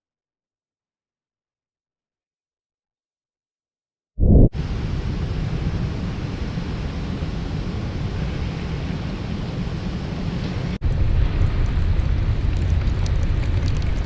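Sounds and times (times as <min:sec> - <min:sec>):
wind buffeting microphone: 0:04.2 - 0:14.0.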